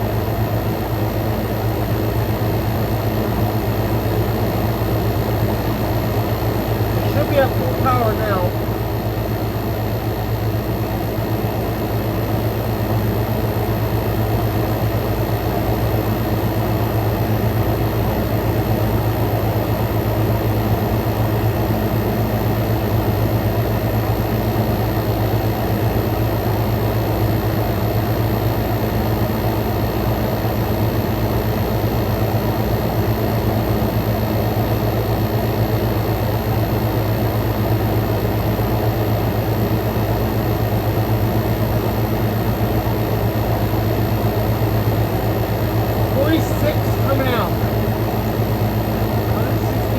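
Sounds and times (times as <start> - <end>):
air conditioner humming: 6.4 - 8.8, 45.5 - 49.9.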